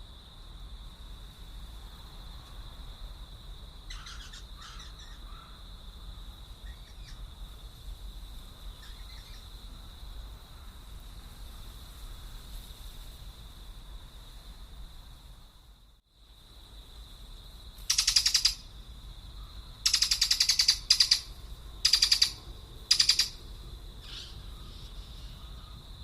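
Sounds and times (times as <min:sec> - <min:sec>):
short harsh bird calls: 0:03.9 - 0:05.5, 0:17.9 - 0:18.6.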